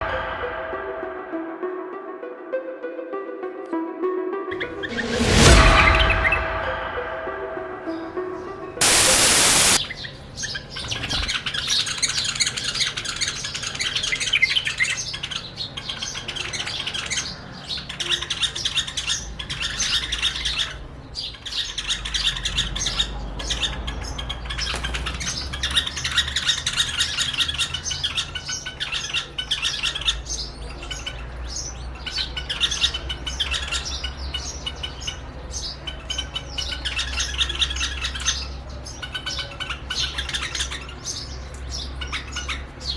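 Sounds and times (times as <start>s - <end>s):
loud burst of noise: 4.7s - 7.4s, 8.8s - 9.8s
low rumble: 4.7s - 7.8s.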